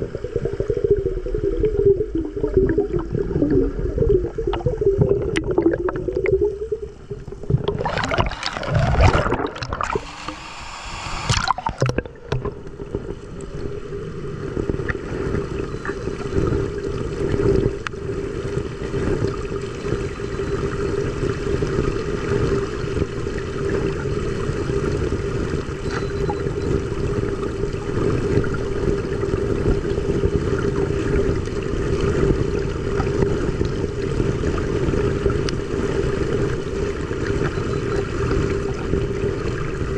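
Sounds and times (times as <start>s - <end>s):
water rushing: 0.0s - 13.2s
low hum: 0.0s - 17.1s
water splashing and gurgling: 0.0s - 39.9s.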